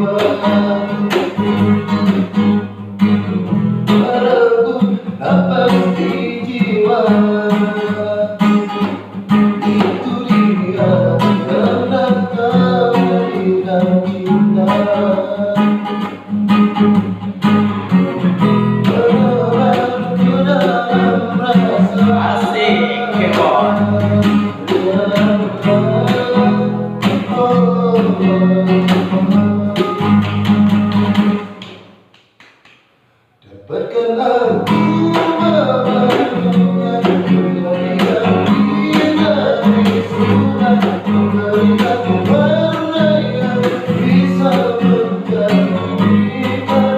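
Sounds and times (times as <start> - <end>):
person singing: 0.0 - 1.4, 3.2 - 8.8, 9.7 - 16.0, 18.8 - 30.2, 33.4 - 46.9
strummed acoustic guitar: 0.0 - 32.0, 33.5 - 46.9.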